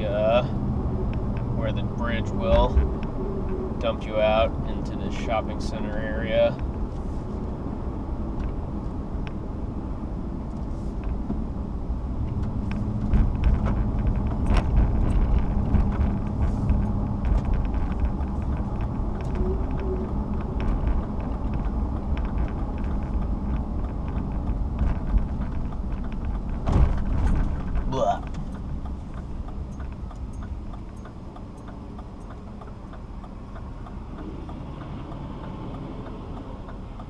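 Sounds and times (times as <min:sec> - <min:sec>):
car road and engine rumble: 0:00.0 - 0:37.0
small clicks and knocks: 0:12.2 - 0:37.0.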